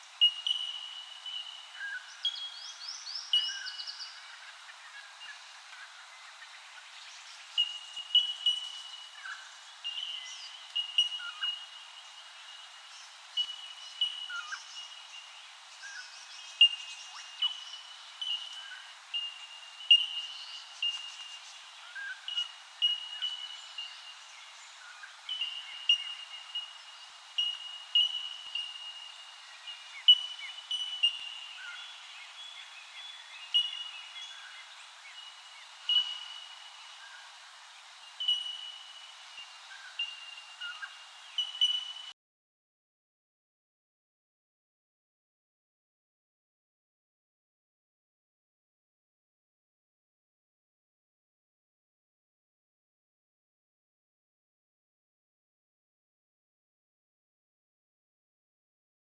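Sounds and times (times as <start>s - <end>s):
faint bird chirps: 0.0s - 42.2s.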